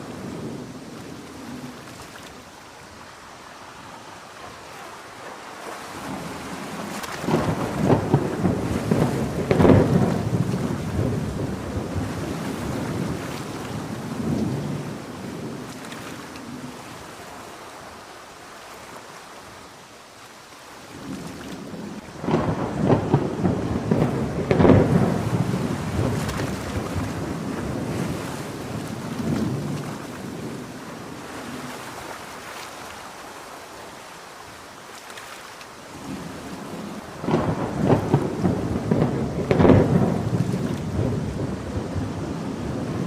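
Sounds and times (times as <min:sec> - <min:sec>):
heavy rain: 0:00.0 - 0:43.0
thunder rolling: 0:05.9 - 0:15.7, 0:21.0 - 0:31.6, 0:36.0 - 0:43.0.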